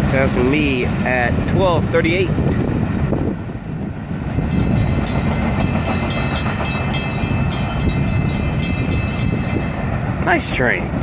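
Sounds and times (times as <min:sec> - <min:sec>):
train wheels rumbling on rail: 0:02.8 - 0:10.6.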